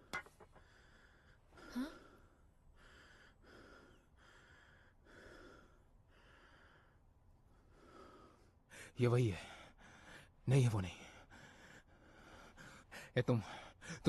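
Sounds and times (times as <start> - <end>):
person breathing: 0.5 - 10.4
person gasping: 1.6 - 2.2.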